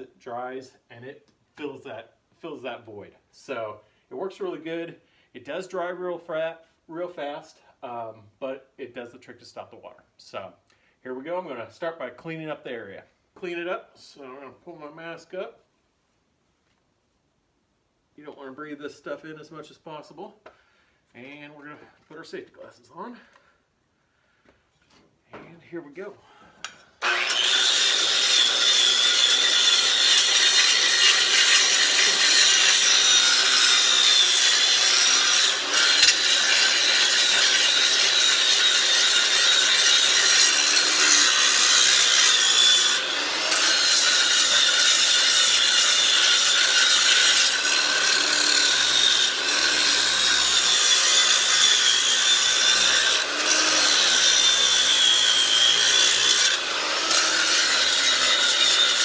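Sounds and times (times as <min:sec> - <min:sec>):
angle grinder cutting concrete: 0:27.0 - 0:59.0.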